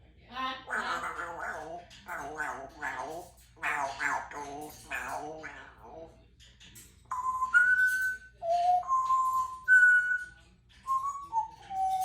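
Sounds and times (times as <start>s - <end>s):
parrot whistling a tune: 7.1s - 12.0s.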